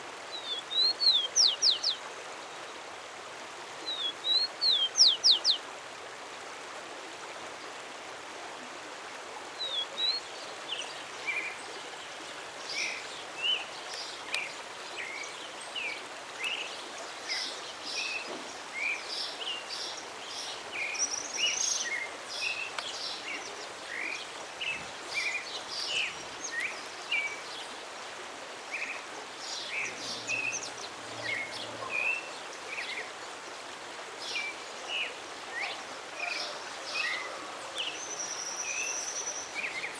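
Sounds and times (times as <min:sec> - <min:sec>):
background hiss: 0:00.0 - 0:39.9
songbird singing: 0:00.3 - 0:02.0, 0:03.8 - 0:05.6, 0:09.6 - 0:27.8, 0:28.7 - 0:33.2, 0:34.2 - 0:39.9.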